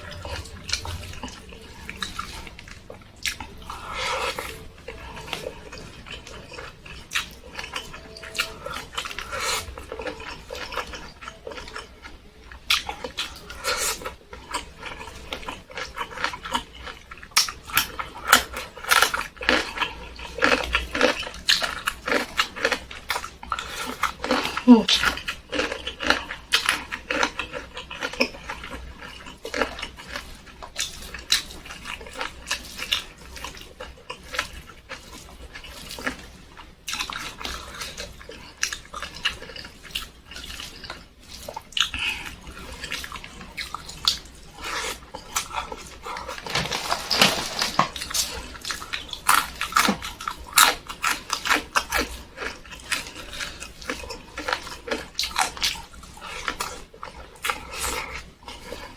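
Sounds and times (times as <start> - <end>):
chewing and lip-smacking: 0.0 - 58.9.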